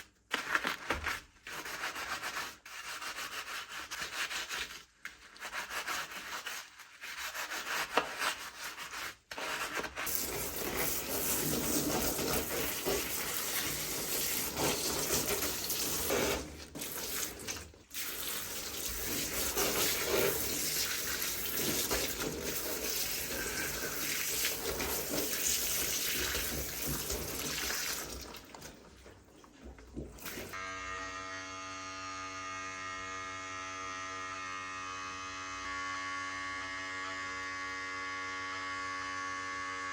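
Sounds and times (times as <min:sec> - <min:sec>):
scrubbing plastic toy: 0:00.3 - 0:30.6.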